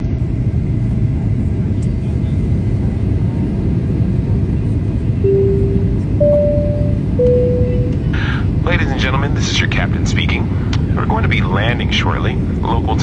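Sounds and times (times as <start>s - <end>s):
airliner cabin rumble: 0.0s - 13.0s
steady tone: 5.2s - 8.3s.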